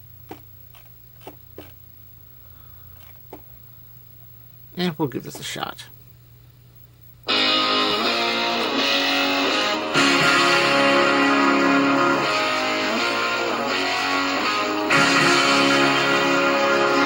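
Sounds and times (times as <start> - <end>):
guitar music through small speakers: 7.3 - 17.0.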